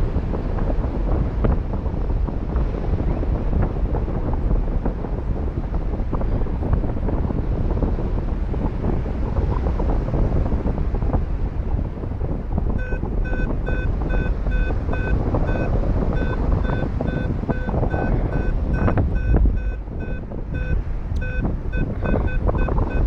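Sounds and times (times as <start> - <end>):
wind noise on microphone: 0.0 - 23.0
short high-pitched beeps: 12.8 - 23.0.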